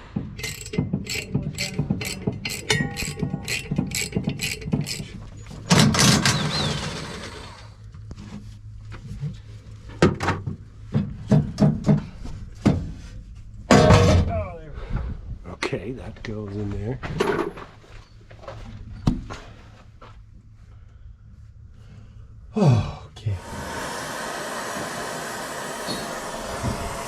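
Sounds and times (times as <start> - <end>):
ratchet wrench clicking: 0.4 - 5.2
loud rushing hiss: 23.3 - 27.0.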